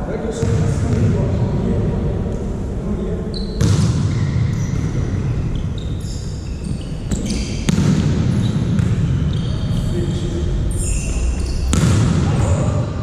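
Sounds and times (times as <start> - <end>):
shoes squeaking on court floor: 3.3 - 12.7.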